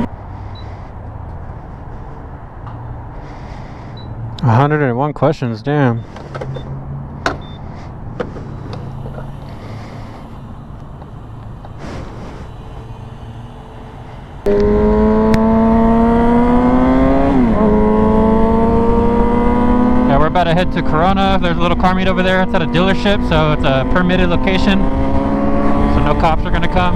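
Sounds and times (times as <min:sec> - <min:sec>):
motorcycle engine revving: 0:00.0 - 0:04.4, 0:06.0 - 0:26.9.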